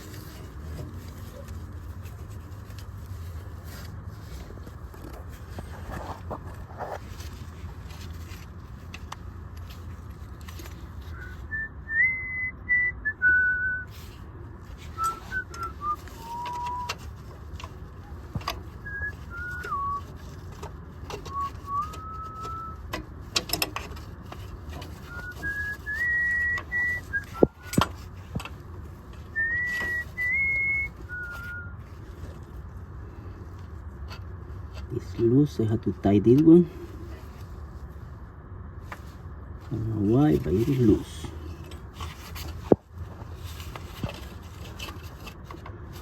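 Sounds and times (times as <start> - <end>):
person whistling a tune: 11.1 - 13.9, 15.0 - 16.9, 18.8 - 20.1, 21.3 - 22.8, 25.0 - 27.8, 29.3 - 31.8
sharp metallic clicks and knocks: 22.9 - 24.9.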